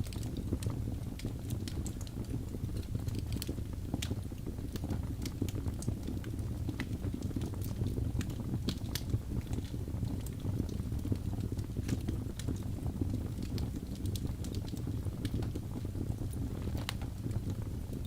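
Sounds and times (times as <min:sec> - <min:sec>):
fire rumbling: 0:00.0 - 0:18.0
logs crackling and popping: 0:00.0 - 0:18.0.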